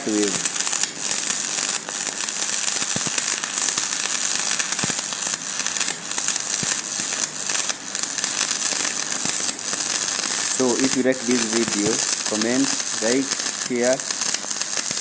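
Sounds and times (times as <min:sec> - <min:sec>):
welding arc crackling and hissing: 0:00.0 - 0:15.0.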